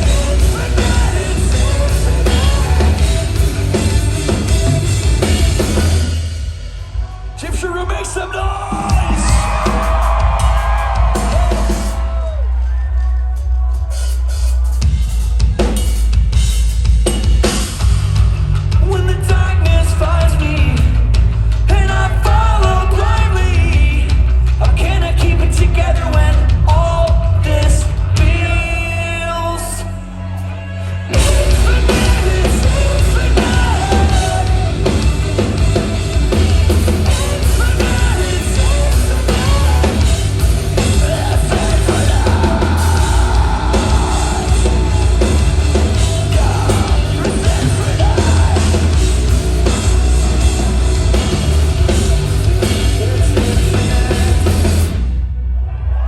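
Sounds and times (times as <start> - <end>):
vocals: 0.0 - 16.1, 17.6 - 56.0
distorted guitars: 0.0 - 55.8
heavy drums: 0.0 - 56.0.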